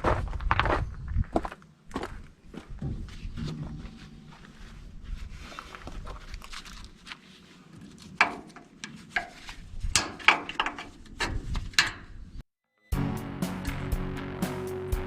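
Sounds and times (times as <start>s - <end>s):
low rustling: 2.5s - 8.2s.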